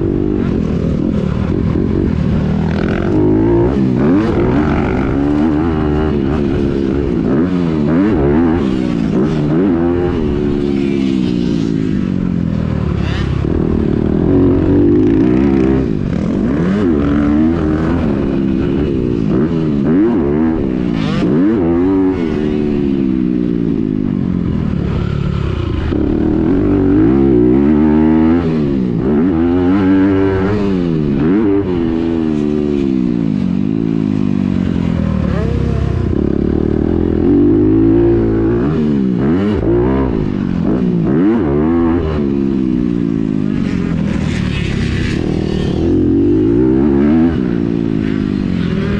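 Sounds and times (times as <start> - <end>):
motocross engine revving: 0.0 - 12.1, 24.8 - 42.4.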